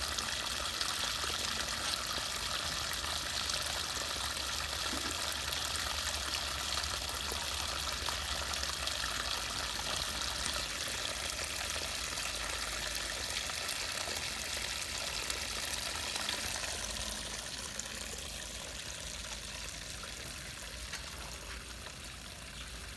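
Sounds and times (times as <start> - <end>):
floodwater pouring through drain: 0.0 - 22.9.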